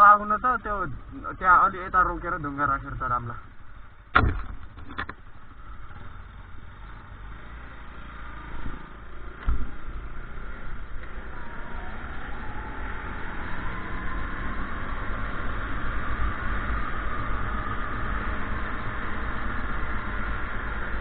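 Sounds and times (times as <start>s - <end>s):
sharp knocks: 4.1s - 5.1s
thump: 4.1s - 5.1s.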